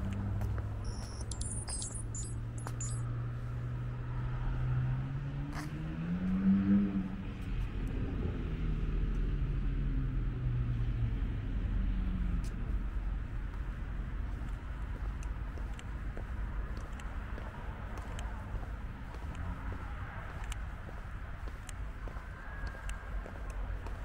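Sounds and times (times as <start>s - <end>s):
vehicle engine running: 0.0s - 4.2s, 9.6s - 24.0s.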